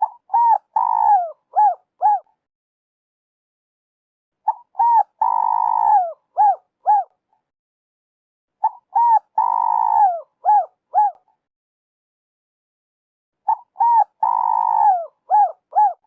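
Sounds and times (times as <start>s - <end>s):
dove cooing: 0.0s - 2.4s, 4.4s - 7.1s, 8.6s - 11.3s, 13.5s - 16.0s.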